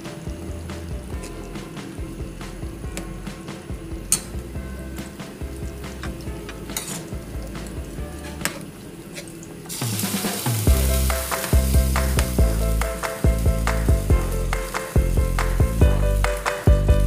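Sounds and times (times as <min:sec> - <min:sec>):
sauce sizzling: 0:00.0 - 0:17.0
metal spoon clicking on pan: 0:04.1 - 0:04.4.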